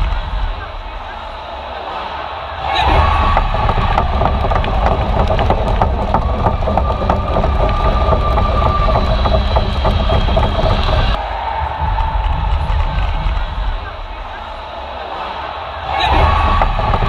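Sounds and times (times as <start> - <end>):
arena crowd rumble: 0.0 - 17.0
sharp knocks and claps: 2.8 - 14.3, 15.9 - 17.0.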